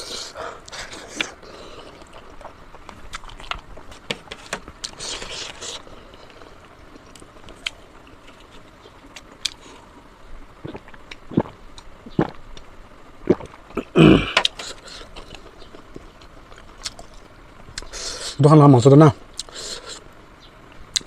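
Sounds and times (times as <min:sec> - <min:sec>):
chewing and mouth smacks: 0:00.7 - 0:04.0, 0:06.3 - 0:09.6, 0:14.4 - 0:17.9
sharp mouth clicks: 0:19.4 - 0:19.6.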